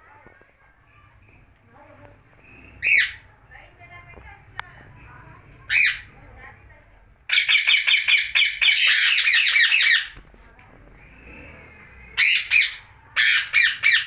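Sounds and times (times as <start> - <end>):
parakeet screeching: 2.8 - 3.2, 5.7 - 6.1, 7.3 - 10.2, 11.1 - 14.0.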